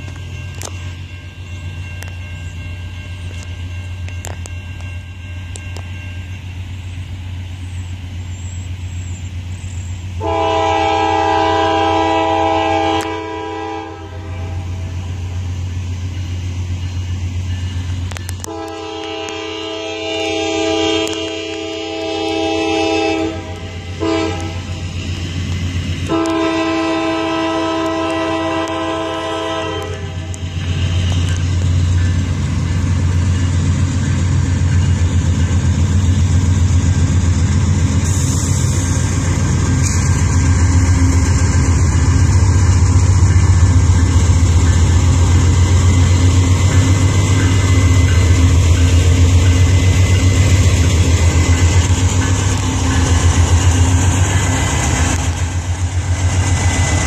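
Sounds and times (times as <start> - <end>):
diesel engines rumbling: 0.0 - 57.0
locomotive horn blasts: 10.2 - 15.0, 18.1 - 24.8, 26.0 - 31.1.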